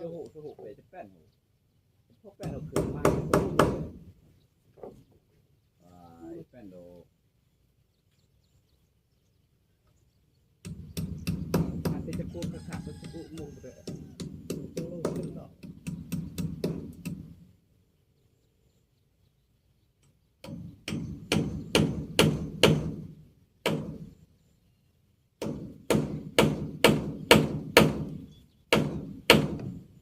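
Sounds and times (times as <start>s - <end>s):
hammer striking wood: 2.4s - 4.0s, 10.6s - 12.6s, 13.8s - 17.3s, 20.4s - 24.1s, 25.4s - 29.8s.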